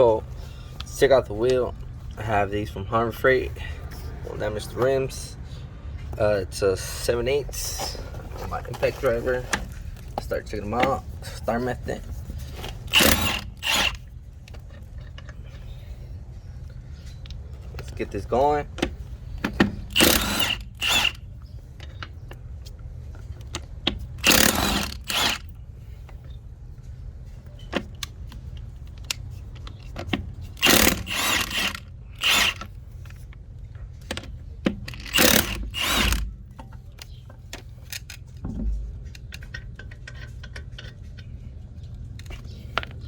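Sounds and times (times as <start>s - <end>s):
impact driver hammering: 12.9s - 14.0s, 19.5s - 21.2s, 24.2s - 25.5s, 30.6s - 32.7s, 34.7s - 36.4s.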